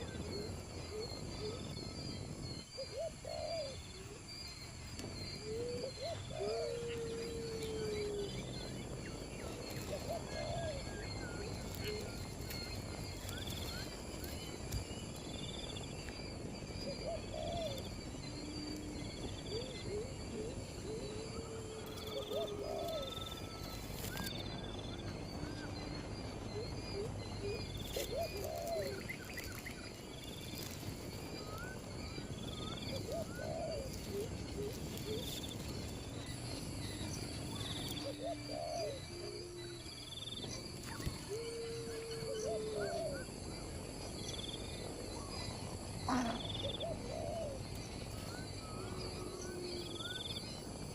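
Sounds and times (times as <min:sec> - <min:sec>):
low-pitched bird calls: 0:00.0 - 0:50.9.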